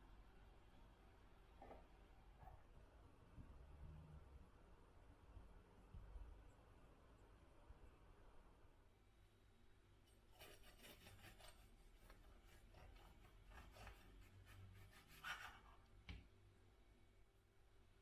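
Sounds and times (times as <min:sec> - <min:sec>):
scraping and rubbing strokes: 0:10.3 - 0:15.9.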